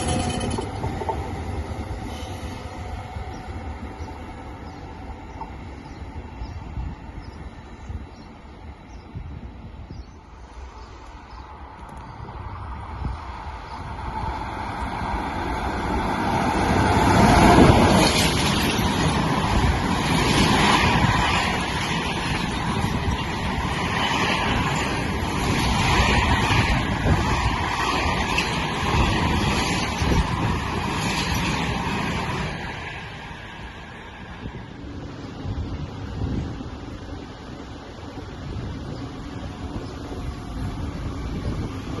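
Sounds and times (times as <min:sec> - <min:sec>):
train carriages clattering: 0:00.0 - 0:01.5, 0:17.4 - 0:19.4
train rumbling past: 0:00.0 - 0:42.0.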